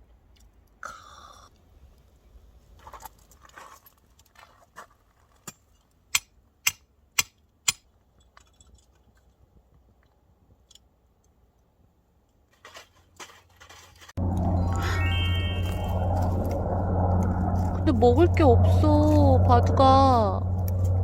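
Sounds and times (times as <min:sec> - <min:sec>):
music: 0:14.5 - 0:16.3.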